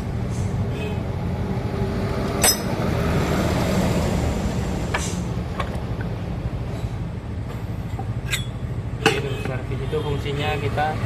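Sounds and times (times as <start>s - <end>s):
metallic clinks of tools: 2.4s - 2.7s.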